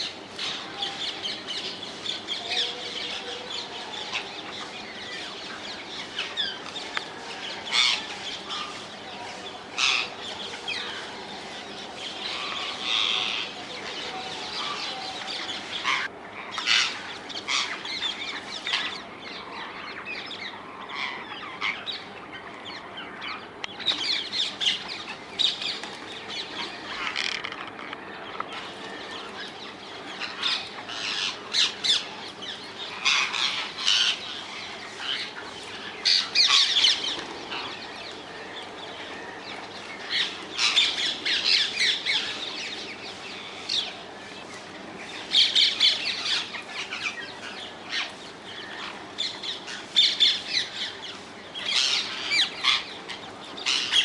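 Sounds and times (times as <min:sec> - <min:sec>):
parakeets squawking: 0:12.1 - 0:19.0, 0:26.7 - 0:27.7, 0:30.2 - 0:37.8, 0:40.0 - 0:42.5, 0:51.6 - 0:54.0.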